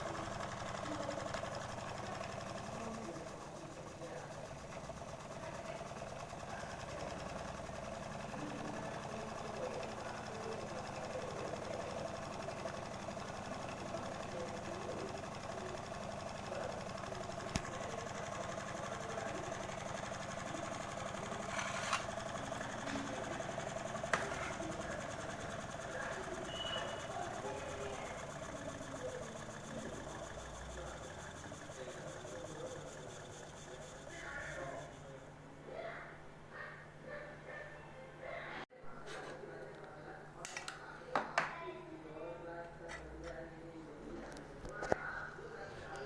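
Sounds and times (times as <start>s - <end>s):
small engine clattering: 0.0s - 35.2s.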